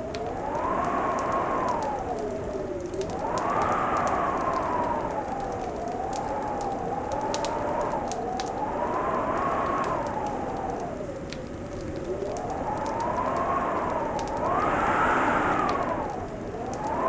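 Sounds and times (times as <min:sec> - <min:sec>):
wood fire crackling: 0:00.0 - 0:17.0
steady rushing sound: 0:14.4 - 0:16.4.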